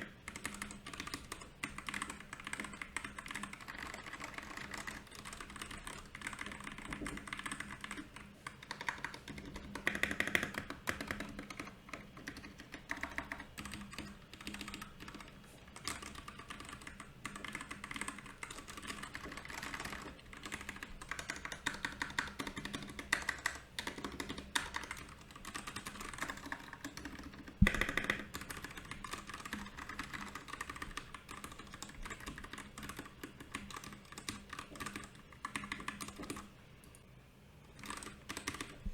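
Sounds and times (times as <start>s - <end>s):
fast typing on mechanical keyboard: 0.0s - 36.5s, 37.7s - 38.9s.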